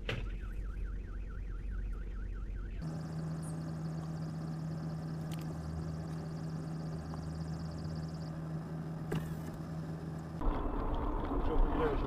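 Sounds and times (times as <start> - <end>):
vehicle engine hum: 0.0 - 12.0
warbling electronic alarm tone: 0.4 - 8.7.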